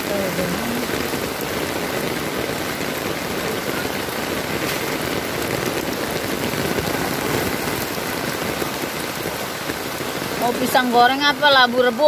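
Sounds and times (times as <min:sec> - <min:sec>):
heavy rain splashing on puddles: 0:00.0 - 0:12.0.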